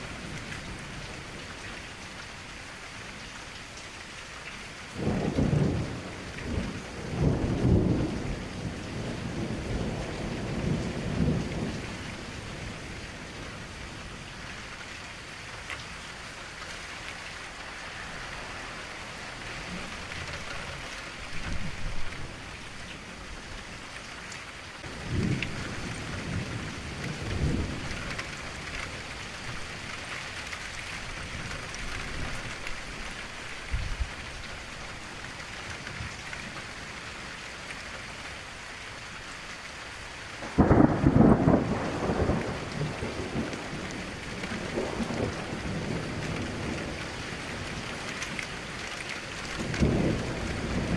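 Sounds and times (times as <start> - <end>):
rain against a window: 0.0 - 50.9
thunder rolling: 24.8 - 28.6, 40.4 - 47.0, 49.6 - 50.9.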